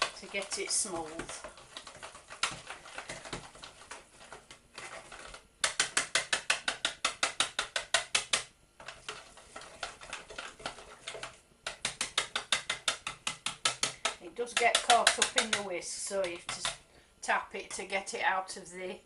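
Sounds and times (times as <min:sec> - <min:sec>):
wire whisk clicking against jug: 0:11.7 - 0:16.8.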